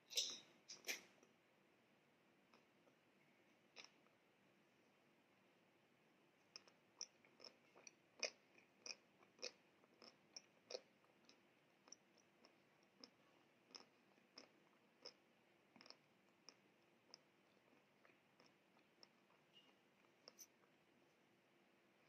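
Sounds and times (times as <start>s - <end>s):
chewing with mouth closed: 6.5s - 20.6s.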